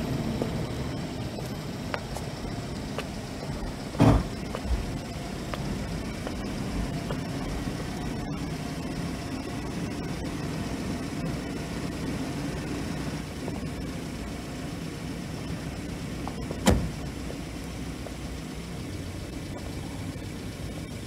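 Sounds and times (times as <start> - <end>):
car engine idling: 0.0 - 21.0
sharp thump: 3.9 - 4.8, 16.6 - 17.0.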